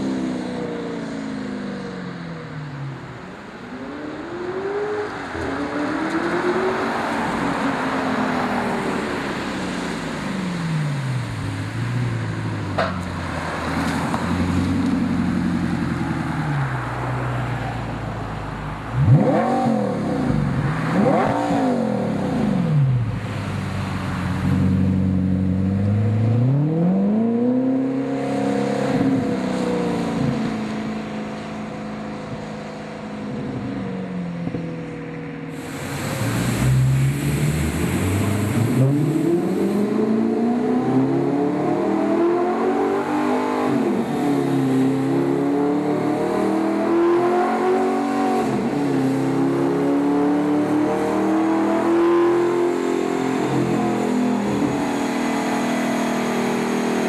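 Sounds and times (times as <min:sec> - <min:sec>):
sports car engine revving: 0:18.9 - 0:57.0.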